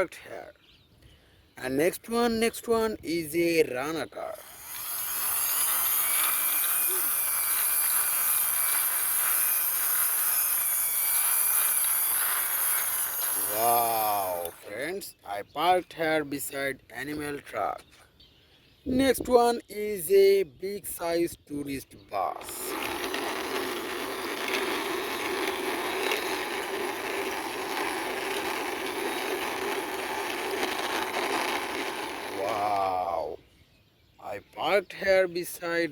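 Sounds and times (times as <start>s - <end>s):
toy car wheels rolling on floor: 4.2s - 14.8s, 22.3s - 33.2s
faint wheel squeak: 22.3s - 33.3s.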